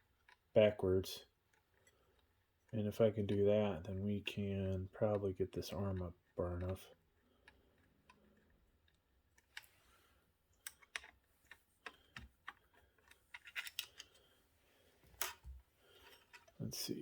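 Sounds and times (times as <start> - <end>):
small hardware clicks and taps: 10.6 - 14.2.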